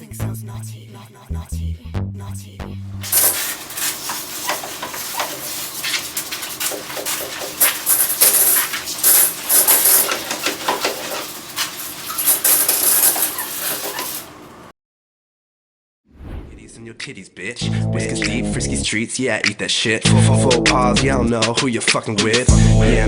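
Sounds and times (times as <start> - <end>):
hissing noise: 3.0 - 10.4
objects clattering and clinking: 3.0 - 14.4.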